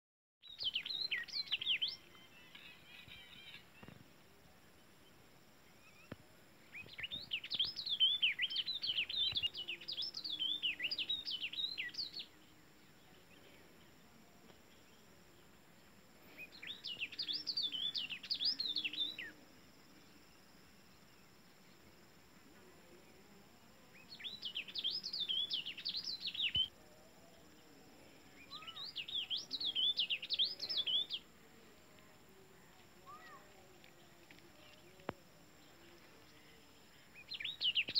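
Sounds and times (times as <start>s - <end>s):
songbird warbling: 23.9s - 26.7s.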